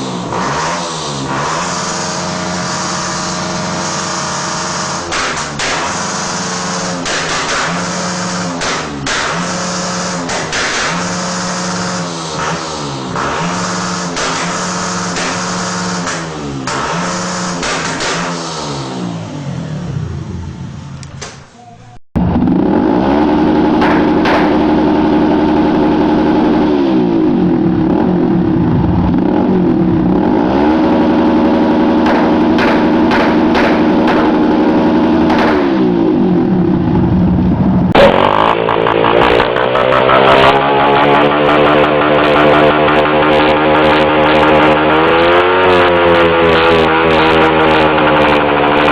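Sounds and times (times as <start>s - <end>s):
motorcycle engine hitting rev limiter: 0.0s - 21.6s, 22.4s - 28.4s, 29.2s - 48.9s.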